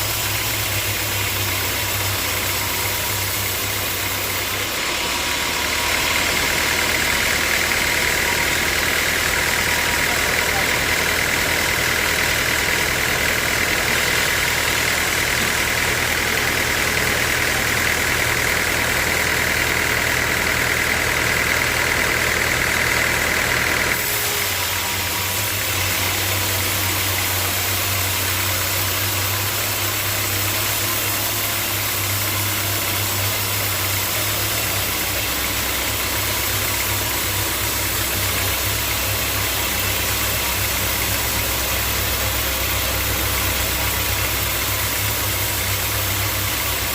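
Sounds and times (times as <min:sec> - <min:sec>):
sawmill machinery humming: 0:00.0 - 0:46.9.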